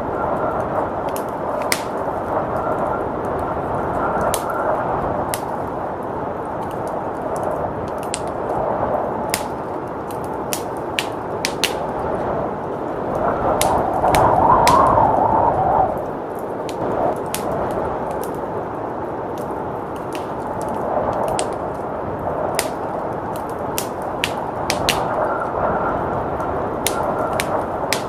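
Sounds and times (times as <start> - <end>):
blizzard wind: 0.0 - 28.0
wood fire crackling and popping: 0.0 - 28.0.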